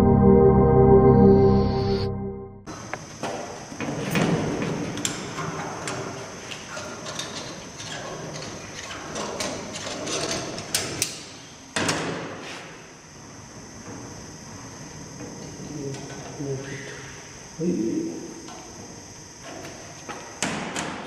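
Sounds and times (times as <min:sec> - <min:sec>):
steady high tone: 0:00.0 - 0:02.7.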